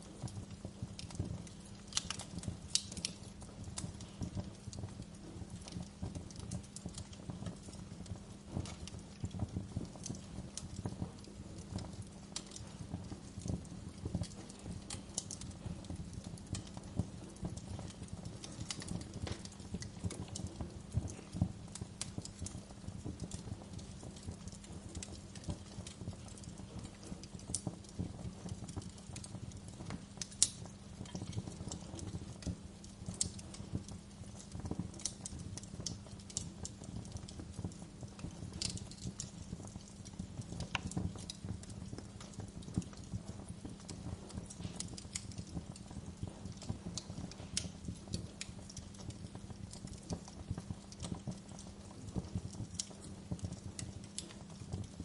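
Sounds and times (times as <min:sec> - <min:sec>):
sharp pops and snaps of fire: 0:00.0 - 0:55.0
wood fire crackling: 0:00.0 - 0:55.0.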